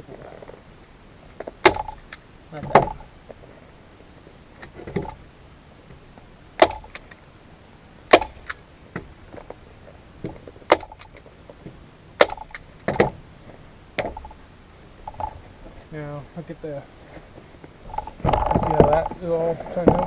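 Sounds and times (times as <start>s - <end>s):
staple gun snapping: 8.2s - 8.6s.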